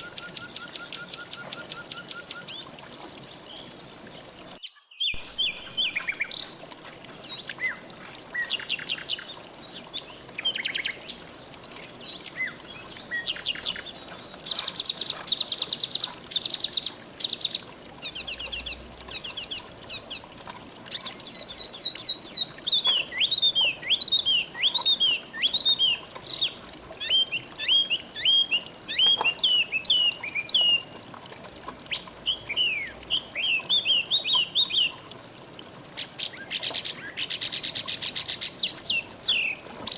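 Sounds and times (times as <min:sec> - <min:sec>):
songbirds singing: 0:00.0 - 0:31.0, 0:31.8 - 0:35.0, 0:35.9 - 0:39.9
flowing water: 0:00.0 - 0:39.9.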